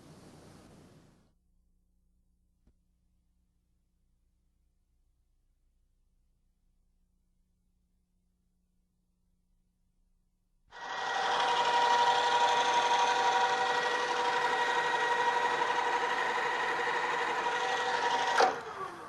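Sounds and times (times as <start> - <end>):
drilling machine motor whine: 10.7 - 19.0.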